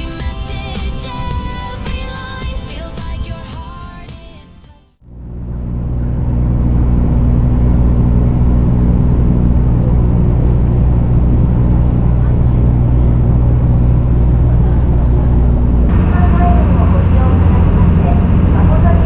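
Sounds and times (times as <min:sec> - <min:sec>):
engine droning: 0:05.0 - 0:19.0.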